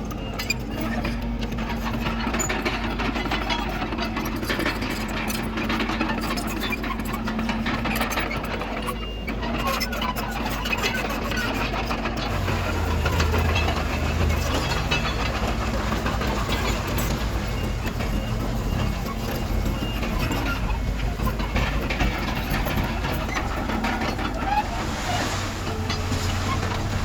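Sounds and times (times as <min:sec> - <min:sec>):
rattling and clatter: 0:09.9 - 0:27.0
diesel engine droning: 0:12.2 - 0:27.0.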